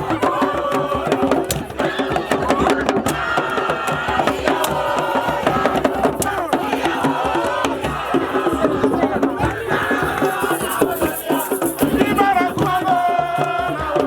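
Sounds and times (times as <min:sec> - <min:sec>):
group of voices chanting: 0:00.0 - 0:14.0
rhythmic percussion: 0:00.0 - 0:14.0
rattle shaking: 0:04.3 - 0:14.0.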